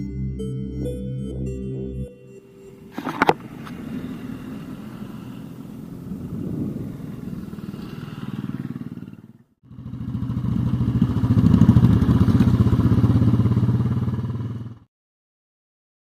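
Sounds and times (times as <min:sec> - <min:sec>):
motorcycle engine running: 0:02.8 - 0:14.9.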